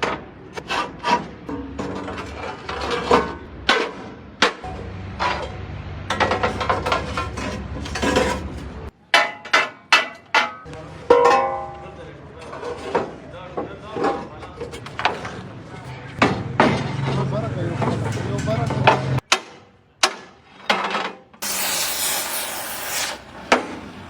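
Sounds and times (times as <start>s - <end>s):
low steady hum: 4.6s - 8.9s.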